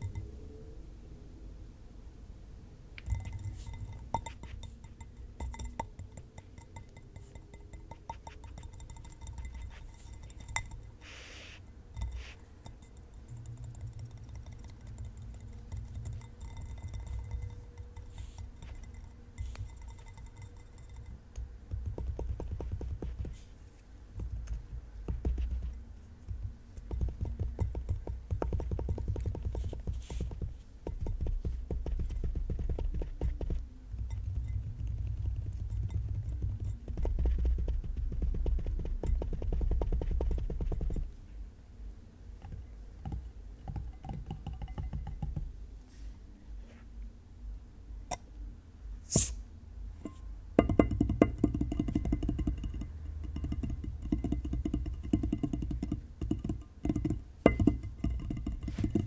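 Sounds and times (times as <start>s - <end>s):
fingers tapping on objects: 3.0s - 11.3s, 12.0s - 23.6s, 24.2s - 41.2s, 42.4s - 45.6s, 50.1s - 59.0s
steady ringing tone: 3.0s - 22.2s.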